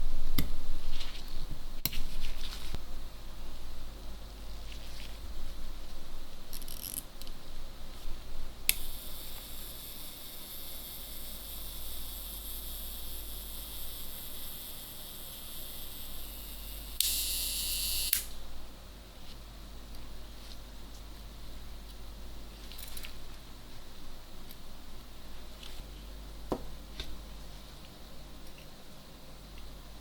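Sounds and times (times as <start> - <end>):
low mains hum: 0.0 - 30.0
high camera mechanism whirring: 8.7 - 18.4.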